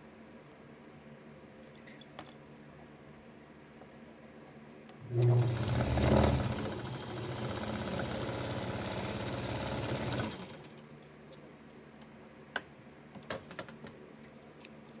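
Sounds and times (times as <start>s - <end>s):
sewing machine stitching: 5.0s - 10.8s.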